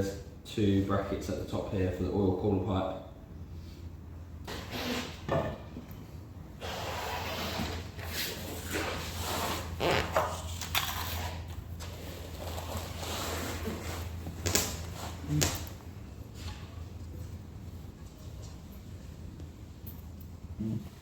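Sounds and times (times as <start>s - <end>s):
low steady hum: 0.0s - 21.0s
scraping and rubbing: 6.6s - 14.2s.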